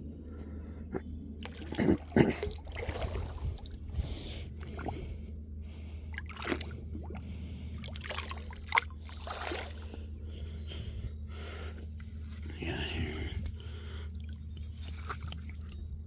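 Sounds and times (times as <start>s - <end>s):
creek water trickling: 1.4s - 4.9s, 6.1s - 10.6s, 11.6s - 16.0s
sharp splashes of bottle handling: 8.0s - 10.0s.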